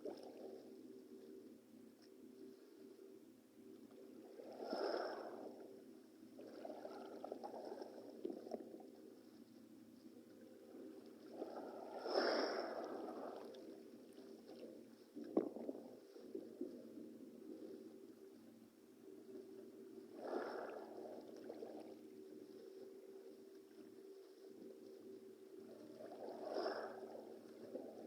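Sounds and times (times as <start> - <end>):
sea water splashing: 11.3 - 13.8.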